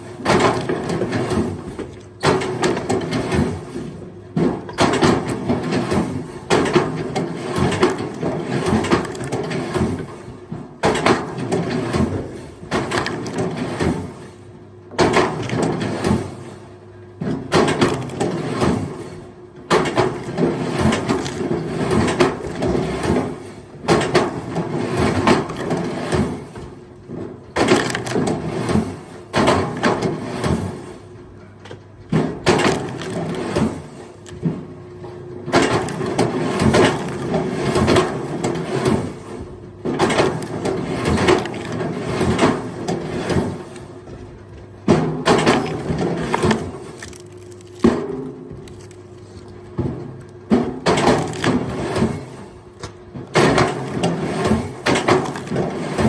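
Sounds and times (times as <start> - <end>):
firewood logs clattering: 23.9 - 30.8, 32.1 - 56.0.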